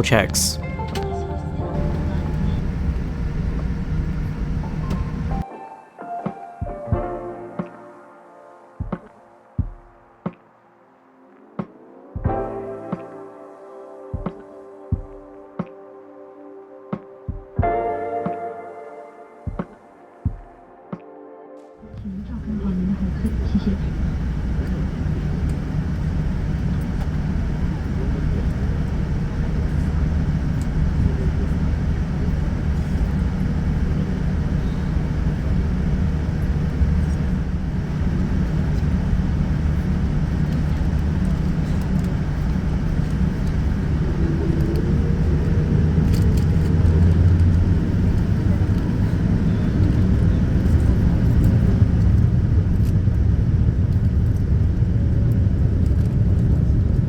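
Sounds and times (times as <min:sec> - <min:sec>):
airliner cabin rumble: 0:00.0 - 0:05.4, 0:21.8 - 0:57.0.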